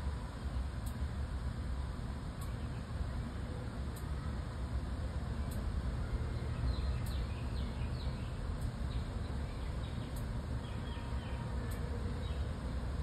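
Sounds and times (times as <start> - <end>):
steady low rumble: 0.0 - 13.0
small birds chirping: 2.4 - 4.4, 5.3 - 12.9.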